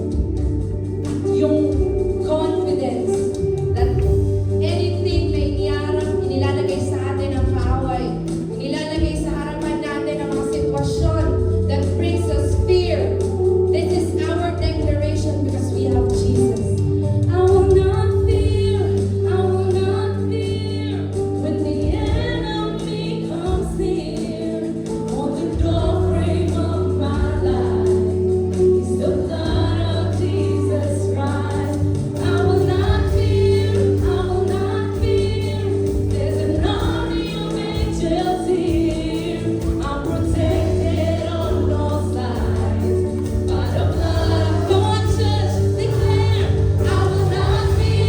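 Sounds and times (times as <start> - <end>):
held chords: 0.0 - 48.0
group singing in harmony: 23.2 - 48.0.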